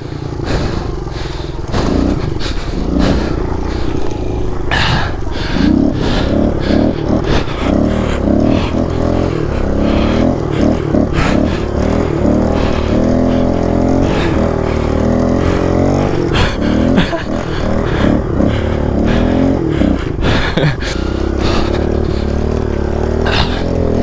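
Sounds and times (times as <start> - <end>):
motorbike engine revving: 0.0 - 24.0.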